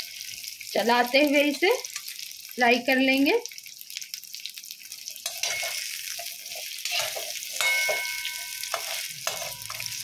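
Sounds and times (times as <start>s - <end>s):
potatoes sizzling in hot oil: 0.0s - 10.0s
metal spoon scraping a pan: 5.1s - 10.0s
thin ringing tone: 7.6s - 10.0s.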